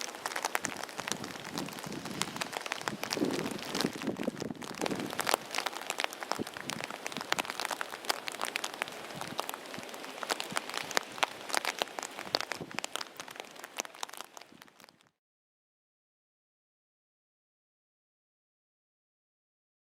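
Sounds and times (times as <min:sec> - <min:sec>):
heavy rain falling: 0:00.0 - 0:15.0
raindrops striking close by: 0:00.0 - 0:15.1.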